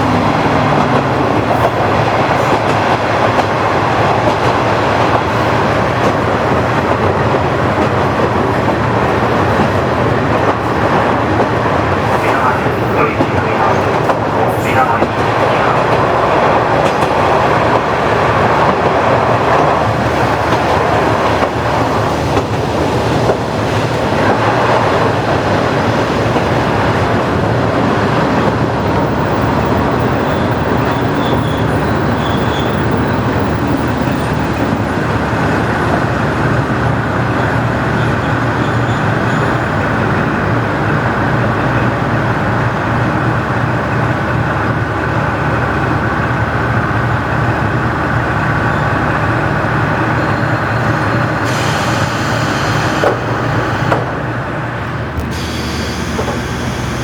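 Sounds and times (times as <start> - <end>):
diesel railcar engine: 0.0 - 57.0.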